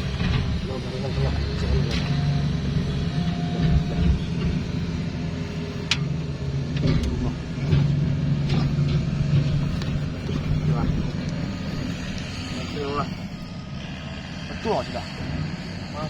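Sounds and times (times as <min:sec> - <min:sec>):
engine humming: 0:00.0 - 0:16.0
sharp clicks and knocks: 0:05.8 - 0:12.3.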